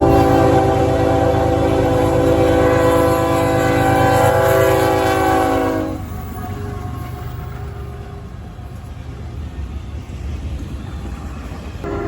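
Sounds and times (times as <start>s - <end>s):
locomotive air horn: 0.0s - 7.3s
train rumbling: 0.0s - 12.0s.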